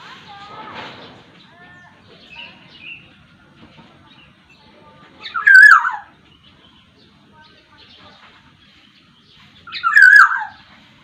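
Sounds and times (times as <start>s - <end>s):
bird chirps: 4.0s - 10.7s.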